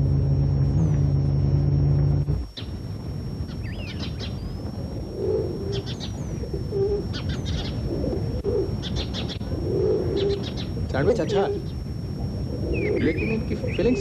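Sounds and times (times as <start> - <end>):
steady low rumble: 0.0 - 14.0
birds calling low: 0.6 - 14.0
high bird chirps: 3.5 - 4.6, 5.6 - 7.9, 10.1 - 10.8.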